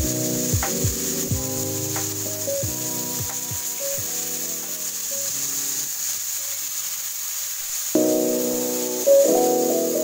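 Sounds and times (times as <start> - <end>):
background music: 0.0 - 5.3, 8.0 - 10.0
meat sizzling in a wok: 0.0 - 10.0.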